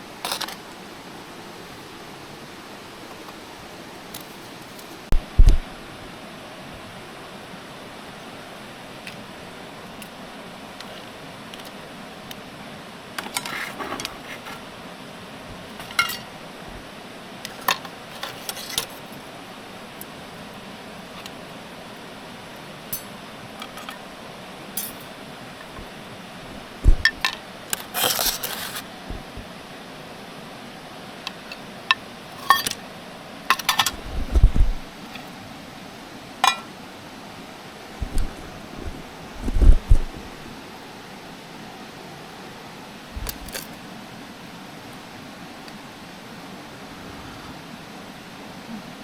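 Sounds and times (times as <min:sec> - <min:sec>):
steady hiss: 0:00.0 - 0:49.0
dull low thump: 0:05.1 - 0:05.7, 0:26.6 - 0:27.2, 0:38.0 - 0:40.3
hard objects clinking: 0:24.8 - 0:25.9, 0:31.9 - 0:32.8.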